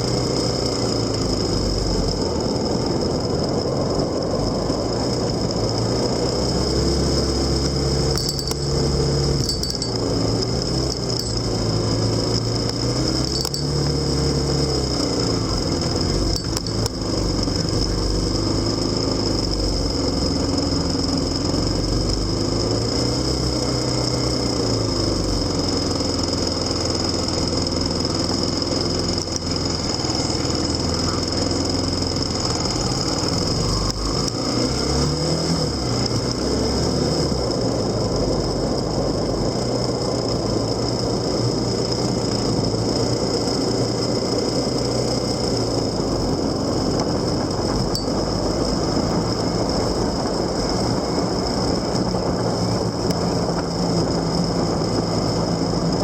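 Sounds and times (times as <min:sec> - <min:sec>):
high-pitched whine: 0:00.0 - 0:39.1
motorcycle engine running: 0:00.0 - 0:56.0.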